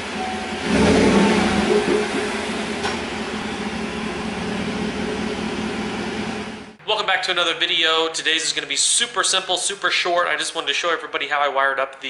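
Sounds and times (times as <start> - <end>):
vehicle engine running: 0.0 - 6.8.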